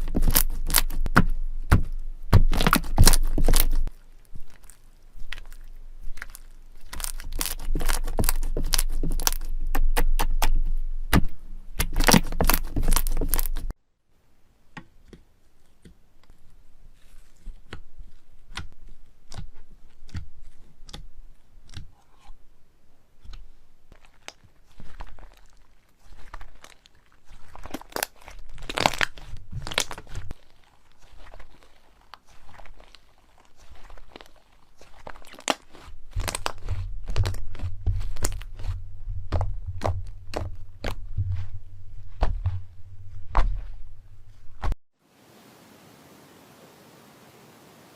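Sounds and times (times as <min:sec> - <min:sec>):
slime crackling and popping: 0:00.0 - 0:13.8, 0:23.2 - 0:41.5.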